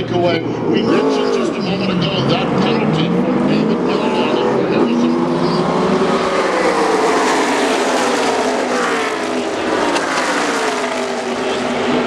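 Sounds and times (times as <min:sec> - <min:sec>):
race trucks passing at speed: 0:00.0 - 0:12.0.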